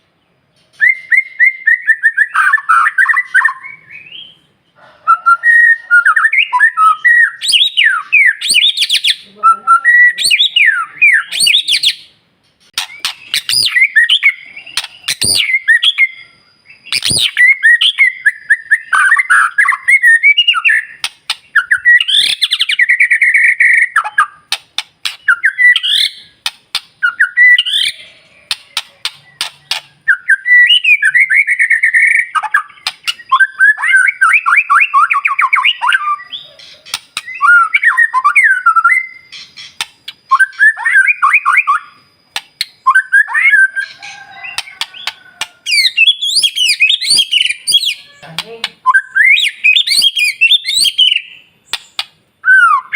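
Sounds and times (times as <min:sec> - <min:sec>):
bird singing whistled notes: 0:00.7 - 0:04.5, 0:05.1 - 0:52.9
bird clicking notes: 0:42.3 - 0:42.8.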